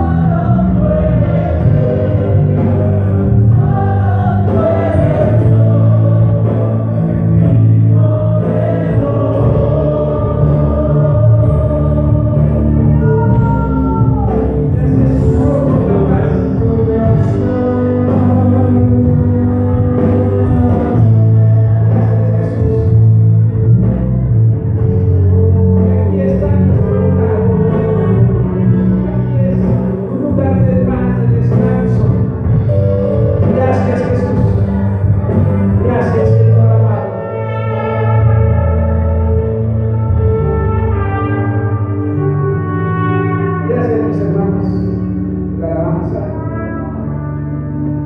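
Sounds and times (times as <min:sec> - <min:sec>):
people singing praise song: 0:00.0 - 0:22.9
live band playing: 0:00.0 - 0:48.0.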